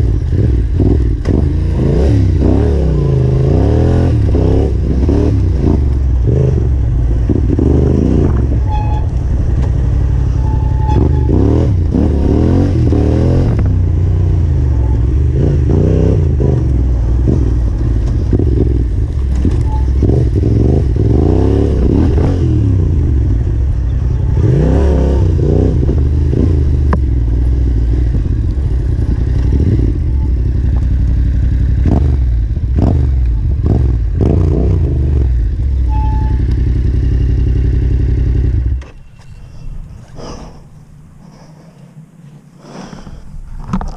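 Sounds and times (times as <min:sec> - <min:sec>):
motorcycle engine revving: 0:00.0 - 0:39.1.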